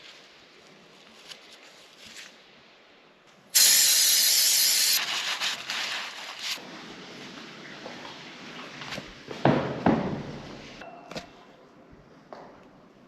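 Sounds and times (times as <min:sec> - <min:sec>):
pressurised spray hissing: 0:03.6 - 0:05.0.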